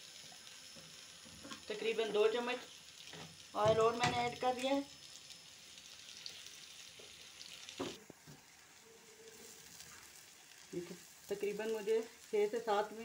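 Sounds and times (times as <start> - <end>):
food sizzling in oil: 0.0 - 13.0
spatula stirring and scraping: 8.3 - 11.2.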